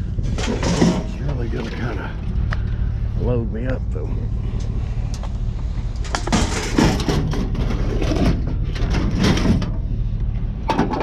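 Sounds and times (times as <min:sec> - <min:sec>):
steady low hum: 0:00.0 - 0:11.0
scrap metal scraping and clattering: 0:00.2 - 0:02.1, 0:06.0 - 0:11.0.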